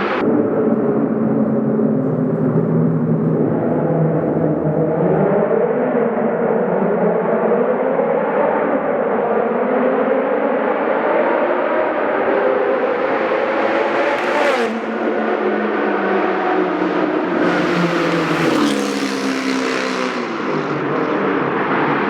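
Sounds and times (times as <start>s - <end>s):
sports car engine revving: 12.1s - 22.0s.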